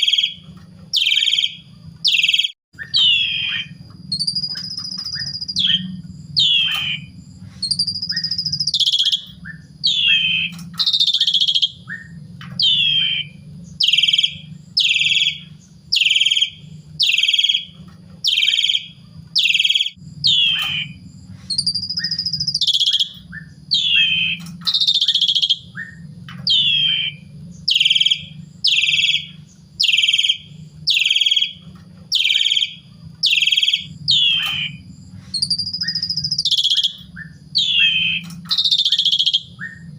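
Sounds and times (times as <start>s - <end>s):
starling whistled calls: 0.0s - 39.9s.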